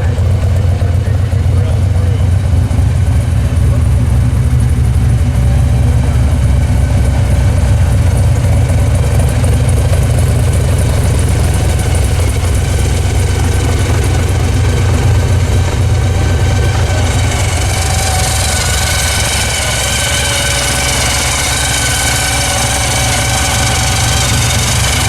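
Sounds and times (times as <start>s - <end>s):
car engine rumbling: 0.0s - 25.0s.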